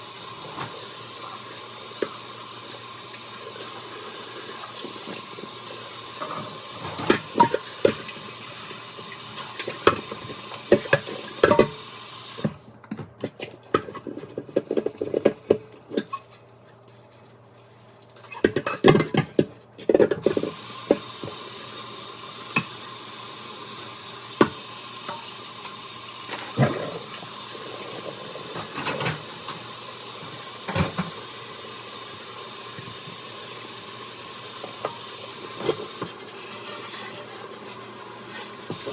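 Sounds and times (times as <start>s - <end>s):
tap water running: 0.0s - 12.6s, 20.2s - 38.9s
plates and utensils clattering: 9.4s - 11.8s, 28.5s - 29.4s.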